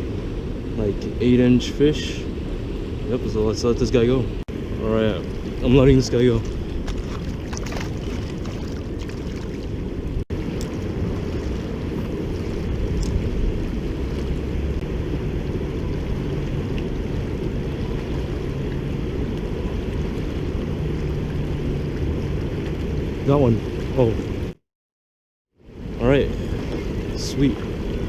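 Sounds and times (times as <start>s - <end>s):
wind buffeting microphone: 0.0s - 24.6s.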